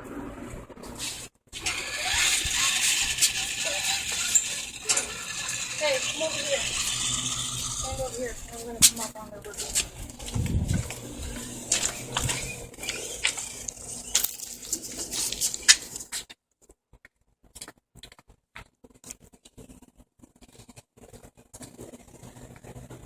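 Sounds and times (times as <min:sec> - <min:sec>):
toy truck clicking and scraping: 0:01.0 - 0:16.3.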